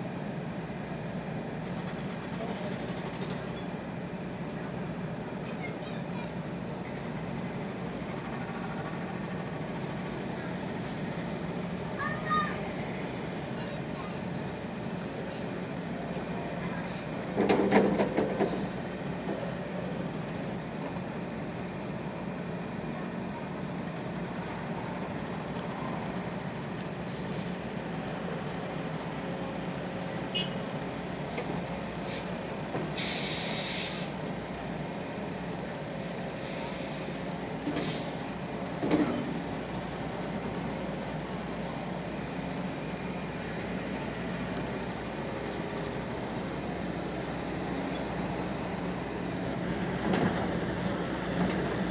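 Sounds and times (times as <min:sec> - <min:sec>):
excavator diesel engine running: 0:06.3 - 0:51.9
short hiss: 0:33.0 - 0:34.1.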